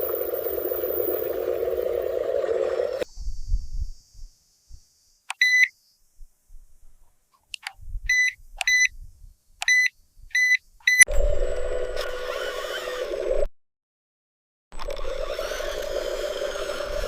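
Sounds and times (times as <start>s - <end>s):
motor hum: 0.0s - 5.2s, 11.1s - 13.5s, 14.8s - 17.0s
sharp clicks: 7.5s - 8.9s.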